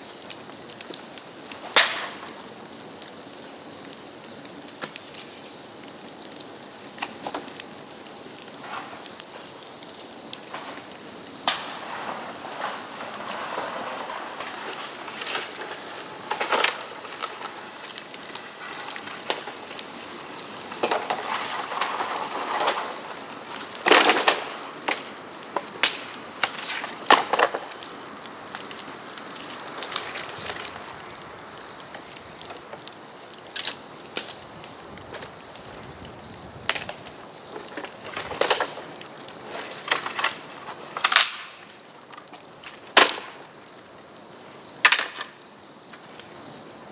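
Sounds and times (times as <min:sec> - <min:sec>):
bamboo fire crackling and popping: 0:00.0 - 0:46.9
thin high whistle: 0:11.1 - 0:17.8.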